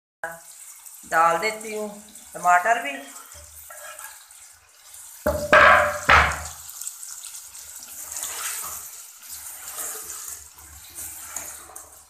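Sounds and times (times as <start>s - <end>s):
vegetables sizzling in a pan: 0.3s - 12.0s
spatula scraping a pan: 3.4s - 4.5s, 7.9s - 12.0s.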